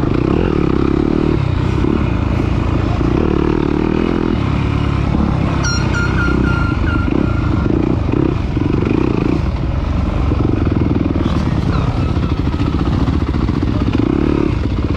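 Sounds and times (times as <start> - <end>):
dirt bike engine revving: 0.1 - 14.9
short high-pitched chirps: 5.6 - 8.3.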